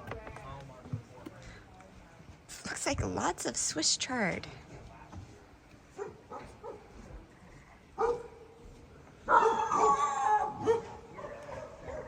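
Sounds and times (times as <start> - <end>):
dog howling: 9.3 - 12.0
dog yelp: 9.3 - 12.0.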